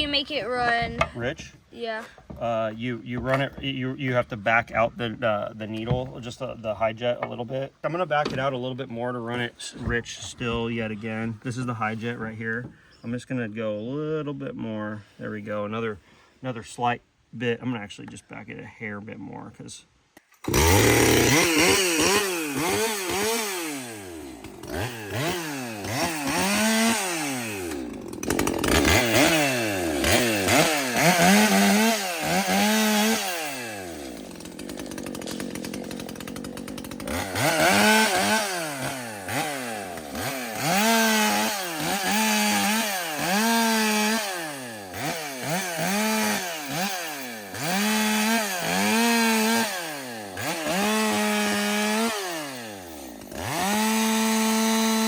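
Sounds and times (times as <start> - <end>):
chainsaw revving: 20.4 - 55.0.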